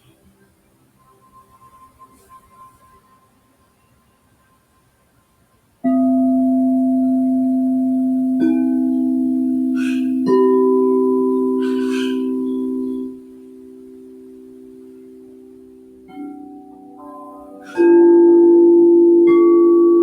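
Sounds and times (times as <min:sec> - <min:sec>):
singing bowls ringing: 0:05.8 - 0:20.0.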